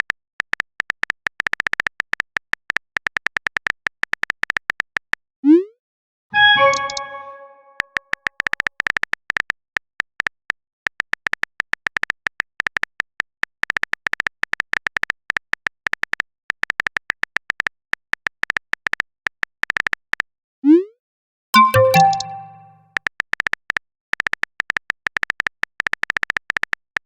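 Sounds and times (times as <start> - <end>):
phone keyboard typing ticks: 21.6 - 22.7.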